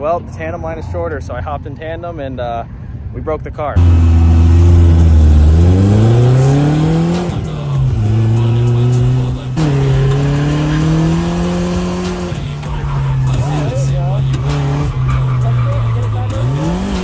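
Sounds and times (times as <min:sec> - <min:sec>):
car engine running hard: 0:03.8 - 0:17.0.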